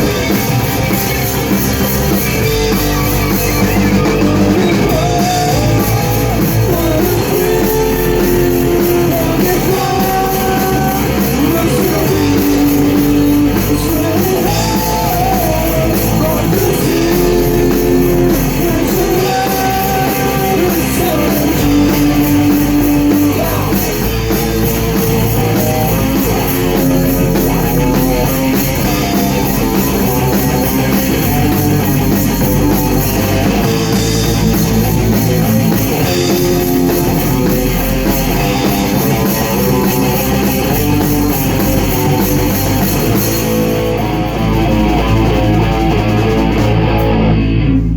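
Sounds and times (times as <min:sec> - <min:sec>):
rock band playing: 0:00.0 - 0:47.9.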